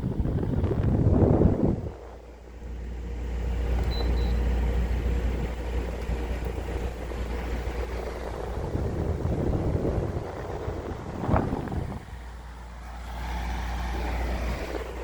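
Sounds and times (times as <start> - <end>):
short high beeps: 3.9 - 4.5.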